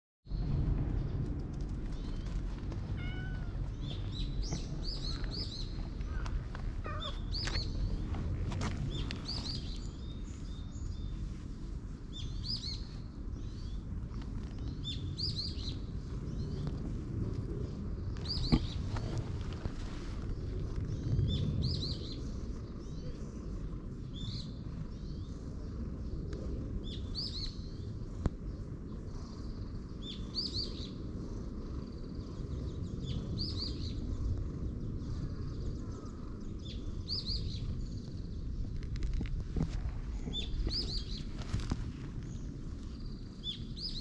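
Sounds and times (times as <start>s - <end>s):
low outdoor rumble: 0.3s - 44.0s
songbird chirping: 1.9s - 11.4s.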